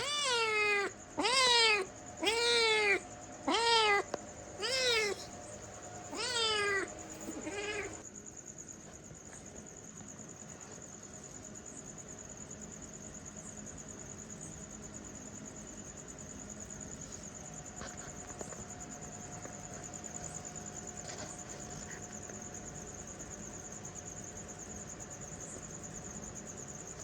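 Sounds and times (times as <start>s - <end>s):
cat meowing: 0.0s - 5.4s, 6.0s - 8.0s.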